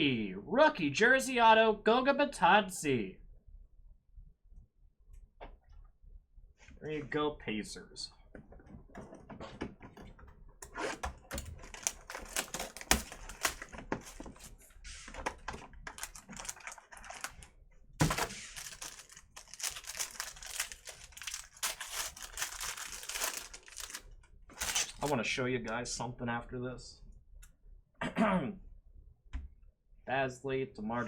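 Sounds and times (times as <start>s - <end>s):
hands clicking and rustling: 11.3s - 14.6s, 18.0s - 25.1s.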